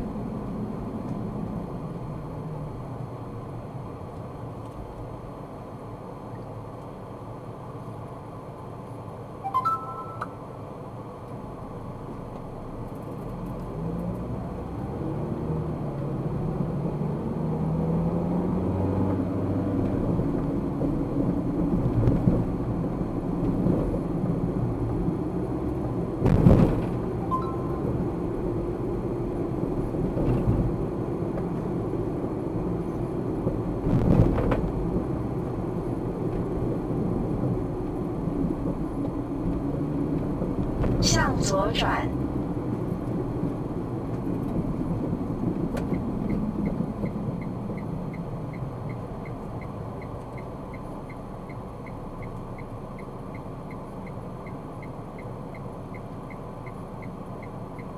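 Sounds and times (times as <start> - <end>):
car engine and tyre rumble: 0.0 - 57.9
short faint beep: 9.4 - 10.5, 27.2 - 28.0.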